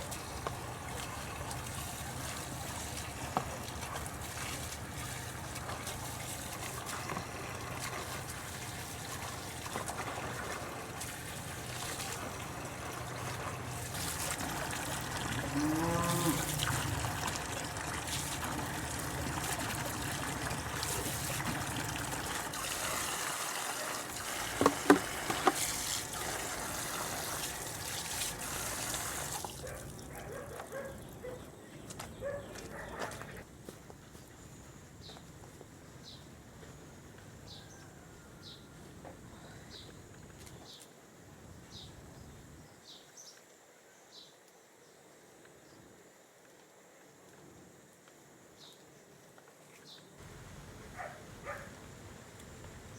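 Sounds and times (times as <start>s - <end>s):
rushing water-like noise: 0.0s - 30.1s
low animal call: 15.4s - 17.2s.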